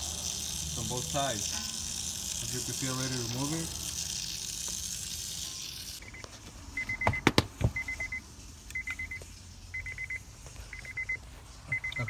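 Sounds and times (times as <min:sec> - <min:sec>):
car warning chime beeping: 0:06.1 - 0:12.0.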